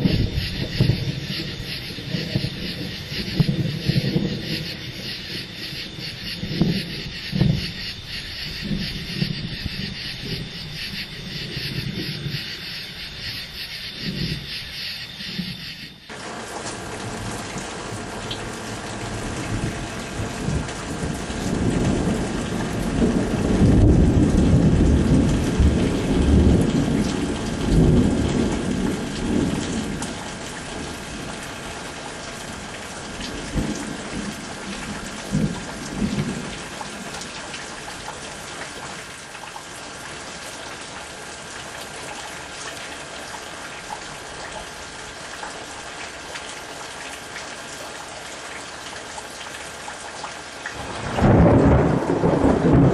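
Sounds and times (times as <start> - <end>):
thunder rumbling: 0.0 - 31.4, 32.6 - 37.4, 50.8 - 52.9
steady rain: 0.0 - 52.9.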